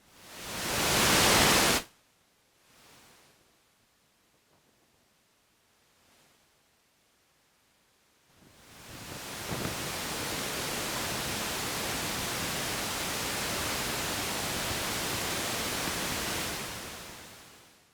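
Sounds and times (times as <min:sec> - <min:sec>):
strong wind: 0:08.7 - 0:17.2
heavy rain: 0:08.7 - 0:17.6.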